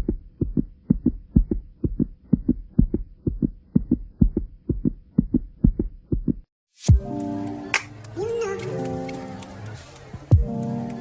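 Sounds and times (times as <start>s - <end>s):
heartbeat thumps: 0.0s - 7.1s, 10.2s - 10.6s.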